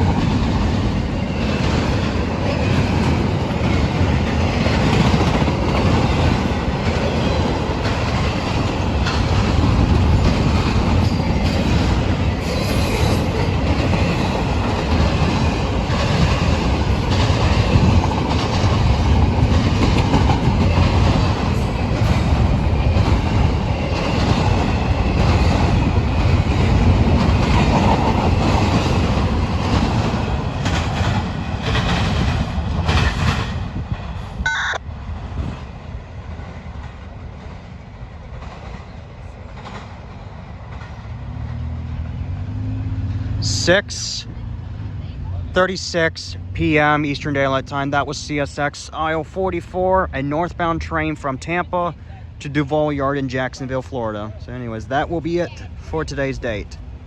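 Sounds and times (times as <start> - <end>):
wheels clacking over rail joints: 0.0 - 34.3, 35.2 - 43.5
freight train wheels rumbling: 0.0 - 57.0.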